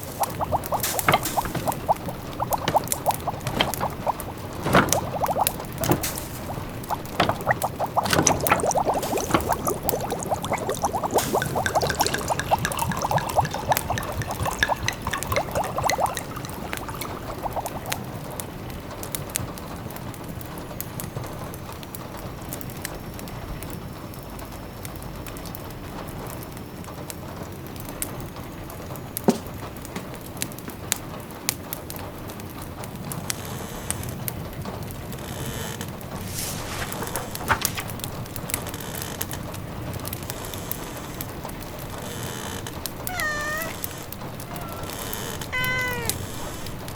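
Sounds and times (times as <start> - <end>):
liquid bubbling and pouring: 0.0 - 18.4, 36.1 - 38.8, 43.0 - 46.9
rain pattering: 0.0 - 22.7, 35.8 - 46.9.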